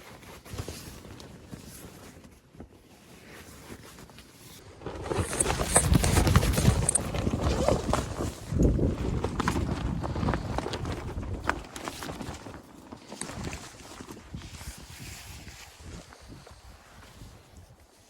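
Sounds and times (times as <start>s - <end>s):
tent rustling: 0.0s - 18.0s.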